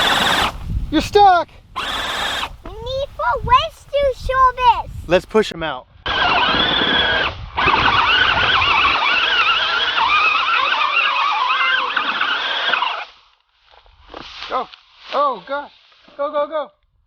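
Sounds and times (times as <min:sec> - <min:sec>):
toy tractor motor whining: 0:00.0 - 0:00.7, 0:01.8 - 0:04.8, 0:06.1 - 0:13.2.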